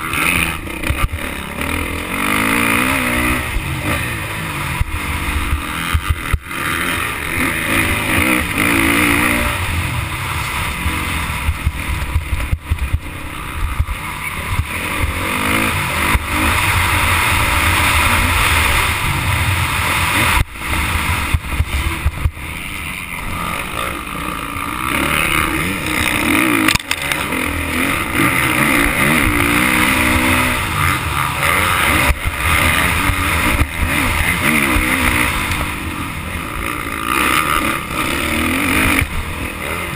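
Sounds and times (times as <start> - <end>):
motocross bike engine revving: 0.0 - 39.9
rushing noise: 0.0 - 39.9.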